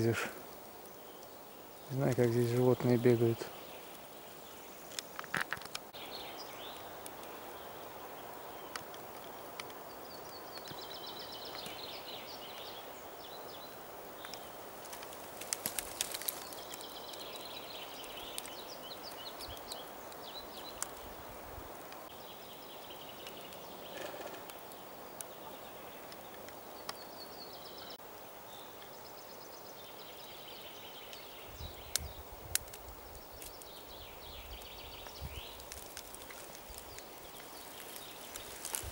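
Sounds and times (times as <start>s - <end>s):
steady outdoor hiss: 0.0s - 38.9s
twigs and branches cracking: 4.8s - 6.0s, 8.6s - 11.9s, 14.1s - 22.2s, 31.8s - 38.9s.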